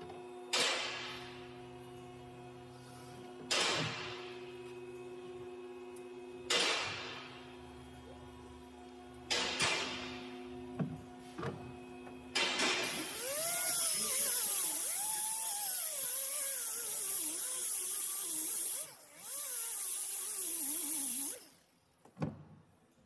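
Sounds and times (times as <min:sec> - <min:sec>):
power tool whining: 0:12.5 - 0:21.7.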